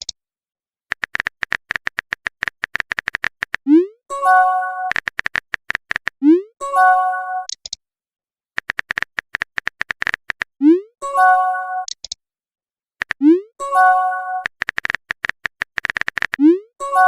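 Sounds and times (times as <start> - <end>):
keyboard typing clicks: 0.9 - 3.7, 4.8 - 6.2, 8.6 - 10.5, 13.0 - 13.4, 14.3 - 16.6
message chime: 4.1 - 4.9, 6.6 - 7.5, 11.0 - 11.9, 13.6 - 14.4.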